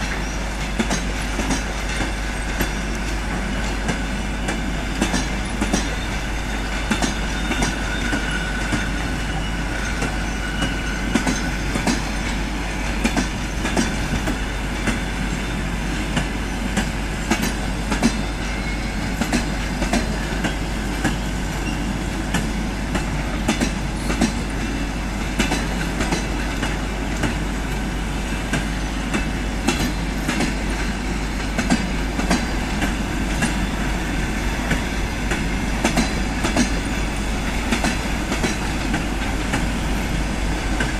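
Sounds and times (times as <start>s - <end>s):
wheels clicking over rail joints: 0.0s - 15.1s, 15.9s - 33.8s, 34.6s - 40.9s
train rumble: 0.0s - 40.9s
faint wheel squeal: 5.8s - 11.7s, 21.1s - 21.9s.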